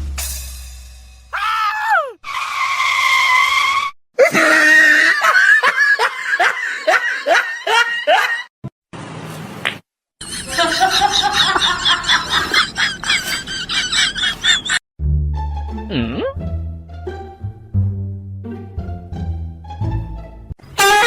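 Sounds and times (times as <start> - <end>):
held high cry: 1.4 - 2.4
high chattering calls: 10.2 - 14.8
laughter-like calls: 10.2 - 14.8.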